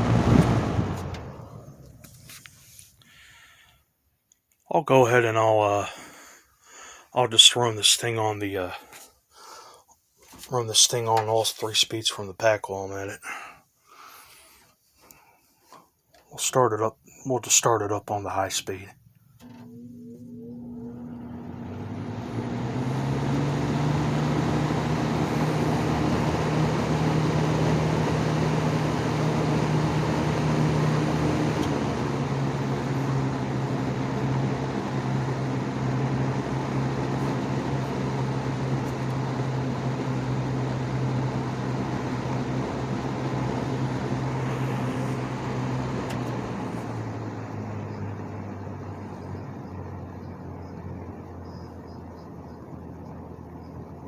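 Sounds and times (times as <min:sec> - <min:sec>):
box fan motor hum: 0:00.0 - 0:02.6, 0:19.0 - 0:54.0
fan air rush: 0:00.0 - 0:03.7, 0:19.6 - 0:54.0.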